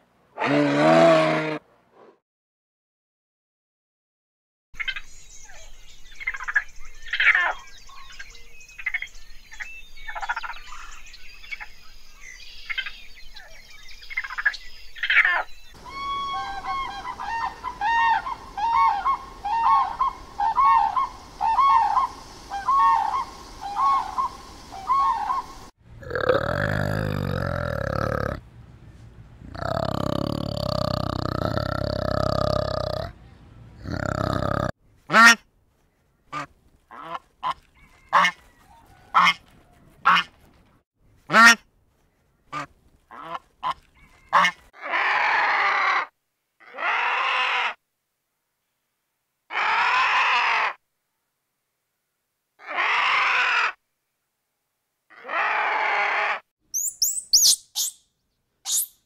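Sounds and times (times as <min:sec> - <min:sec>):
low-pitched animal call: 0:00.4 - 0:02.2, 0:15.8 - 0:25.4, 0:26.0 - 0:28.4, 0:29.5 - 0:34.7
cranes calling: 0:15.0 - 0:25.7
short chirping calls: 0:56.7 - 0:59.0.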